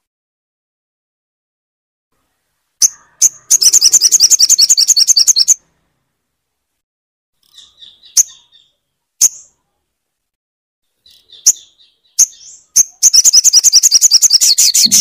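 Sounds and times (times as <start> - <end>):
bird calling with rattling trill: 2.8 - 5.6, 7.4 - 9.5, 11.0 - 15.0.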